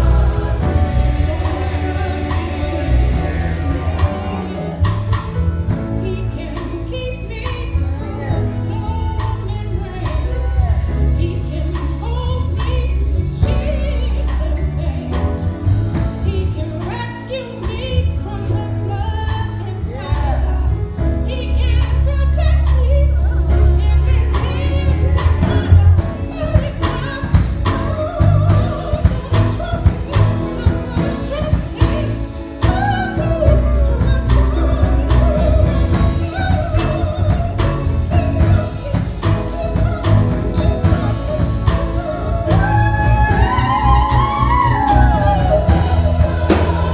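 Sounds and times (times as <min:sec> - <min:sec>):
heavy bass line: 0:00.0 - 0:07.3, 0:21.9 - 0:46.9
choir singing gospel song: 0:00.0 - 0:21.6, 0:22.5 - 0:46.9
band accompaniment: 0:00.0 - 0:46.9.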